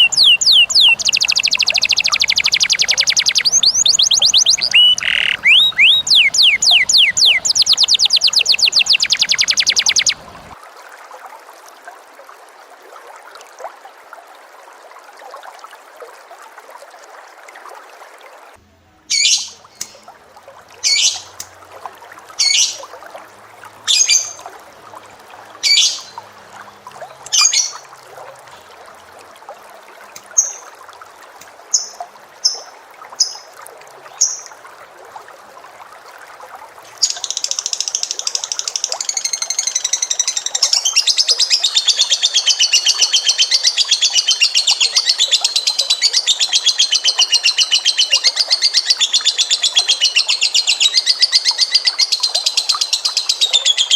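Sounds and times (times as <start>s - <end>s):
cage bird calling: 0.0s - 10.6s, 19.1s - 20.0s, 20.8s - 21.3s, 25.6s - 26.2s, 37.0s - 53.9s
rapid bird trill: 0.0s - 10.6s.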